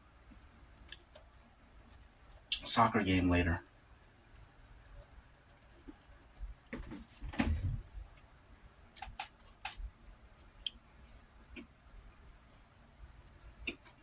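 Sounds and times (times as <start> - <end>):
small clicks and taps: 0.3 - 2.7, 9.0 - 9.8.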